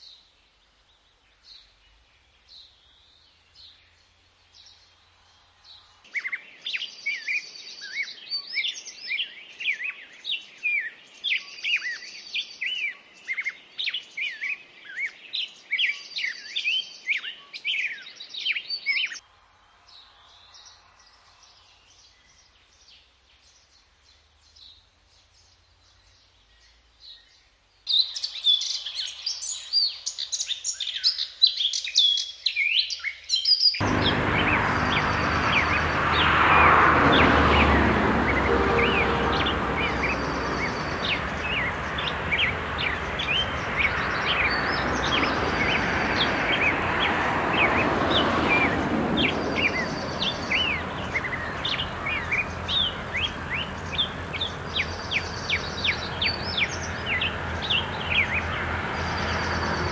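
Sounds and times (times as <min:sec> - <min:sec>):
birds chirping and whistling: 0:34.0 - 0:36.2, 0:47.6 - 0:59.4.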